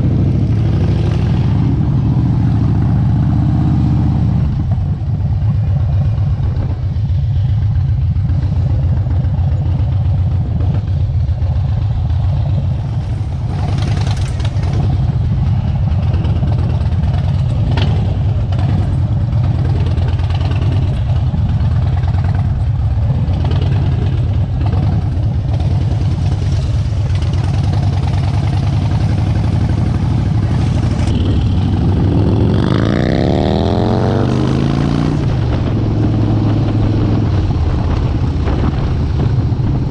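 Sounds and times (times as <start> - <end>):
motorcycle engine rumbling: 0.0 - 39.9
engine accelerating: 12.5 - 39.9.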